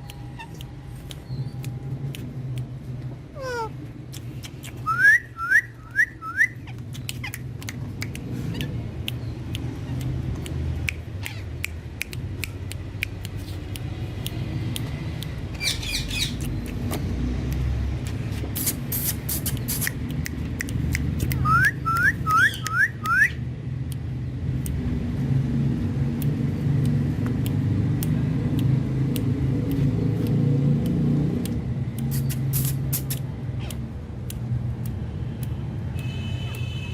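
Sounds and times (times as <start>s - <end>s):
parrot calling: 0.1s - 0.6s, 3.4s - 3.8s, 11.0s - 11.6s, 15.6s - 16.4s, 21.3s - 23.4s
parrot whistles rising: 4.8s - 6.6s, 21.4s - 23.4s
scattered clicks: 6.7s - 15.6s, 23.8s - 25.1s, 26.0s - 36.7s.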